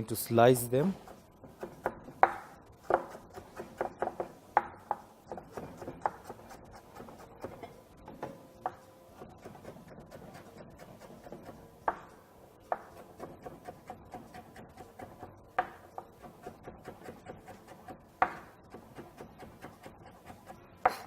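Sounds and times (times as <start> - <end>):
knife slicing carrots: 9.2 - 11.6, 12.8 - 15.3.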